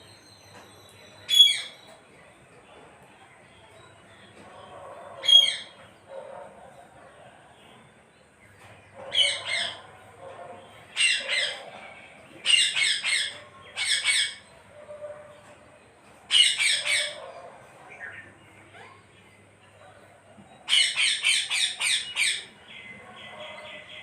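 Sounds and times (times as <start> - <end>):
parrot squawking: 9.1 - 9.9, 10.9 - 11.7, 12.4 - 14.5, 16.3 - 17.2, 20.7 - 22.5.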